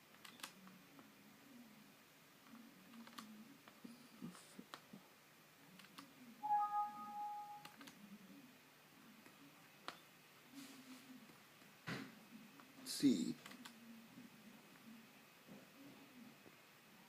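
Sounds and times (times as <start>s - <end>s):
computer mouse clicks: 0.1s - 0.8s, 2.4s - 3.8s, 5.8s - 6.1s, 7.6s - 8.0s, 13.4s - 13.8s
steady pitched tone: 6.4s - 7.7s.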